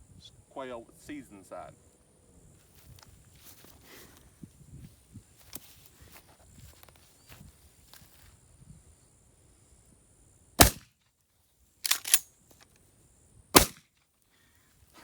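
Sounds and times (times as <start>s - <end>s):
loud gunshots: 10.6s - 10.8s, 13.6s - 13.8s.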